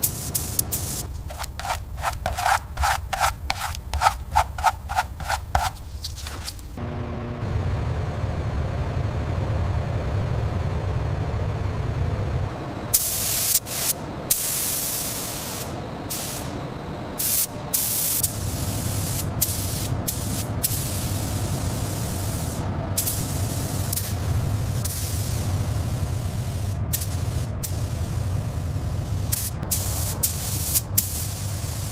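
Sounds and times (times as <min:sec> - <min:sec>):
compressed air spraying: 0:00.0 - 0:05.7, 0:12.9 - 0:16.5, 0:17.2 - 0:24.2, 0:24.8 - 0:25.4, 0:26.2 - 0:28.3, 0:29.1 - 0:31.9.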